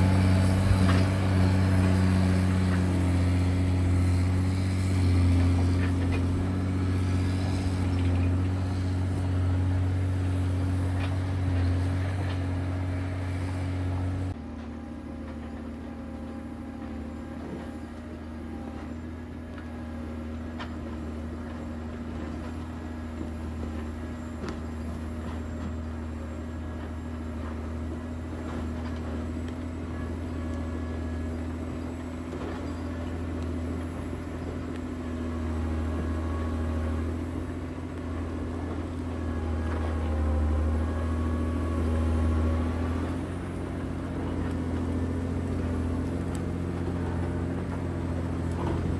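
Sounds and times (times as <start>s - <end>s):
diesel engine droning: 0.0s - 48.9s.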